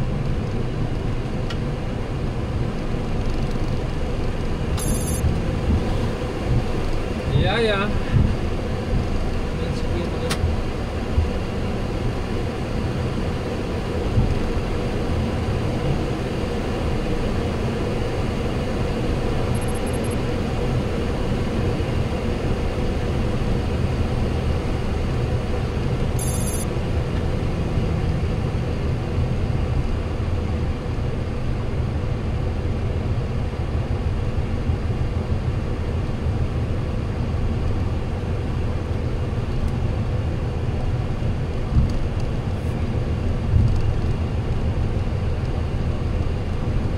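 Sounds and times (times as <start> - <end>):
aircraft cabin rumble and hiss: 0.0 - 46.9
high electronic chirps: 4.8 - 5.2, 26.2 - 26.6.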